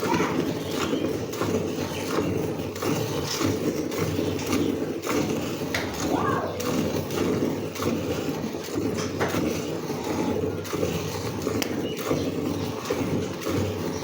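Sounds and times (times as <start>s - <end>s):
milk squirting into a pail: 0.0s - 14.0s.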